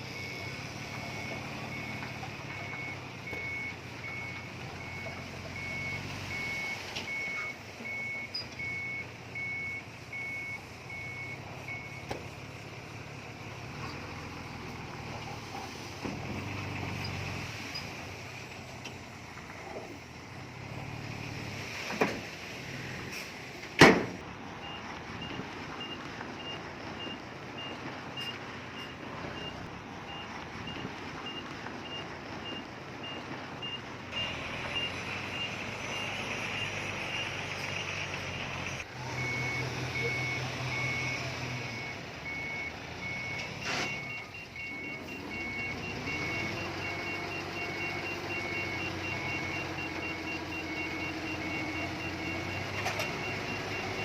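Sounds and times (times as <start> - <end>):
diesel engines running: 0.0 - 54.0
reversing alarms beeping: 0.1 - 12.1, 24.6 - 54.0.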